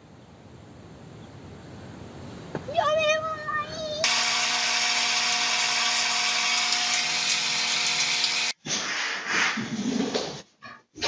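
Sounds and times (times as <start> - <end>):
small motor whining: 4.1 - 8.6.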